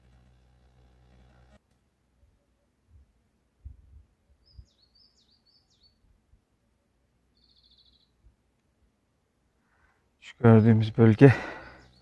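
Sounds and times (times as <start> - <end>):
bird trill: 4.4 - 6.0, 7.3 - 8.2, 11.6 - 12.0
bird chirping: 4.4 - 6.1, 6.8 - 8.3, 10.3 - 12.0.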